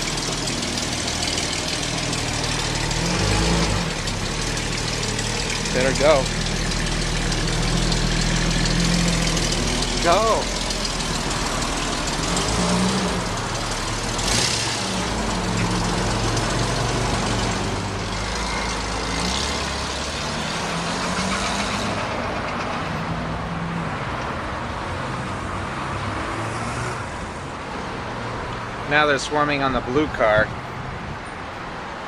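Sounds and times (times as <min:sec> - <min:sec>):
vehicle engine running: 0:00.0 - 0:22.0
traffic noise: 0:00.0 - 0:32.0.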